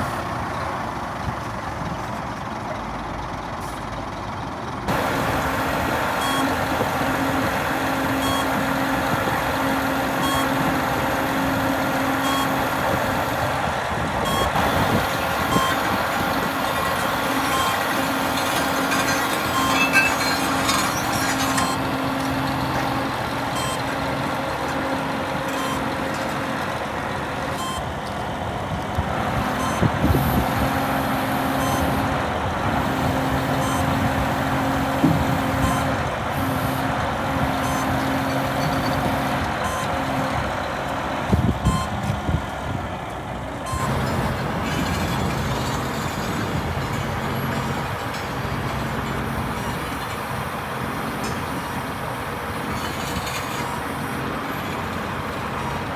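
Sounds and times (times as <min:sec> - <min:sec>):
truck diesel engine running: 0:00.0 - 0:55.9
held tone: 0:04.9 - 0:13.6
clunks: 0:14.2 - 0:55.9.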